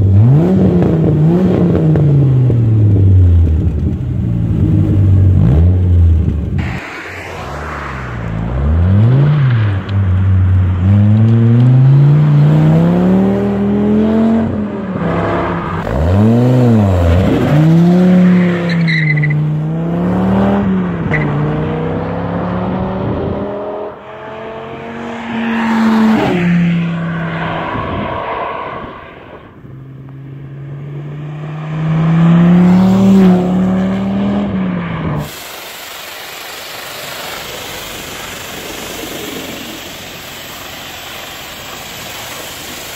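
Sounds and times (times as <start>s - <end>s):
car engine revving: 0.0s - 35.5s
steady hiss: 35.2s - 42.9s.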